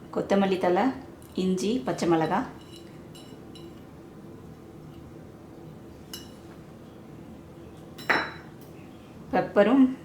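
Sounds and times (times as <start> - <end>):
spoon clinking against bowl: 2.1 - 3.9, 6.1 - 6.5, 8.0 - 8.8.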